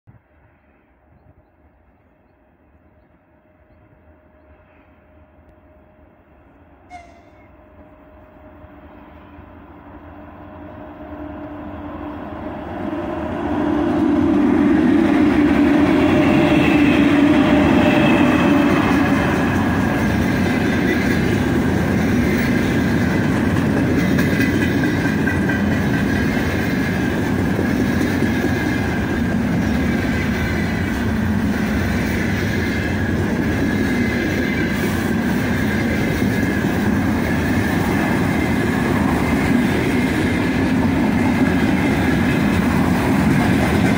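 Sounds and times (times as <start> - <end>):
electric locomotive passing: 0.1 - 43.9
freight train rumbling past: 0.1 - 43.9
wheels clacking over rails: 14.6 - 43.9.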